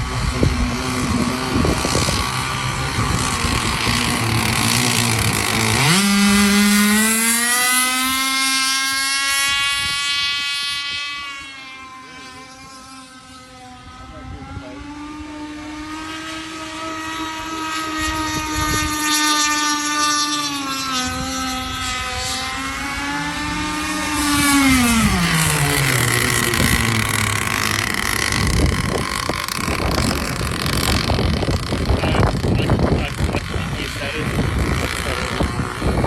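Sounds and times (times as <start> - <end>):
rushing sound with low thumps: 0.0 - 7.2, 21.1 - 36.0
two-stroke boat engine: 0.0 - 36.0.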